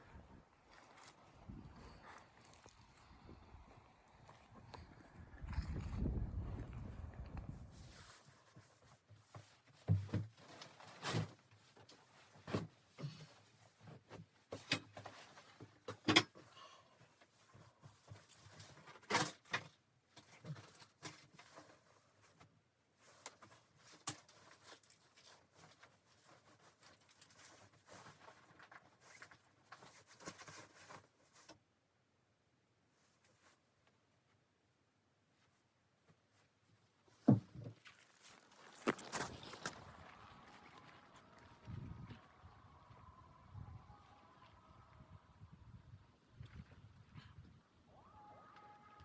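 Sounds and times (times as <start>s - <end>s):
rustles: 7.5s - 31.7s, 32.8s - 45.1s.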